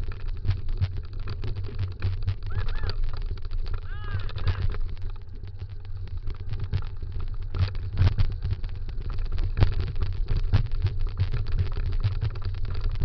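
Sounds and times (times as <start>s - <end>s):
scooter rattling over bumps: 0.0s - 8.4s
wheels rumbling on dirt trail: 0.0s - 13.0s.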